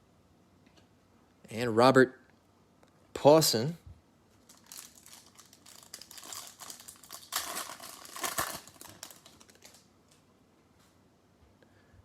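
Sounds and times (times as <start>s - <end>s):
foil wrapper crinkling and tearing: 4.4s - 10.2s.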